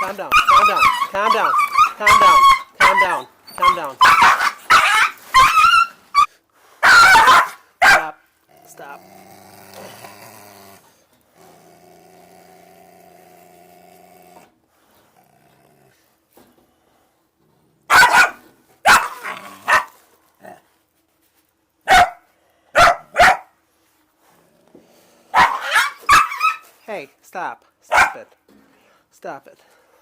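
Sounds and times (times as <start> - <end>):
dog barking: 0.3 - 8.2, 17.9 - 20.0, 21.9 - 23.5, 25.3 - 26.6, 27.9 - 28.3
dog growling: 8.5 - 16.1, 19.1 - 19.7.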